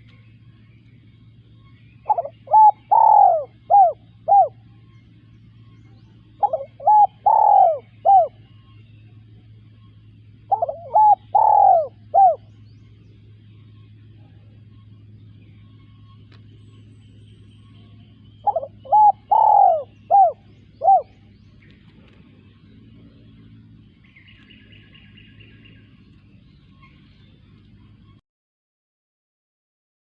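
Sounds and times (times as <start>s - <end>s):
faint low hum: 0.0s - 28.2s
dove cooing: 2.0s - 4.8s, 6.2s - 8.8s, 10.1s - 13.3s, 17.7s - 26.0s.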